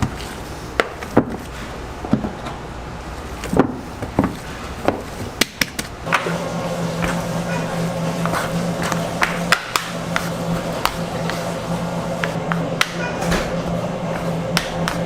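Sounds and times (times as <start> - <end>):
low machine hum: 0.0 - 15.0
knocks of food preparation: 7.0 - 11.6, 12.2 - 15.0.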